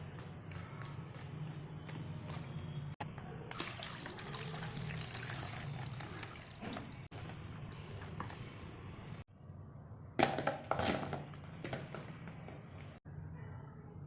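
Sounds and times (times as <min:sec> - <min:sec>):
water running and splashing: 0:03.5 - 0:07.1.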